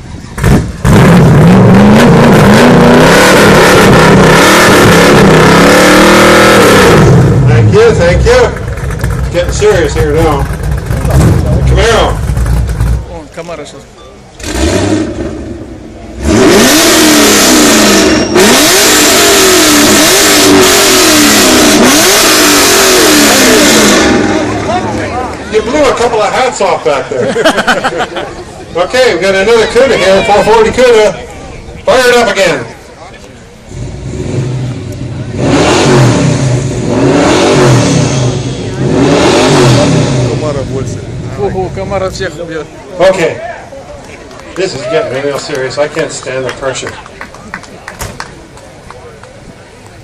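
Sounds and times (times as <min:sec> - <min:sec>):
car engine revving hard: 0:00.4 - 0:13.0, 0:14.4 - 0:25.1, 0:33.7 - 0:42.1.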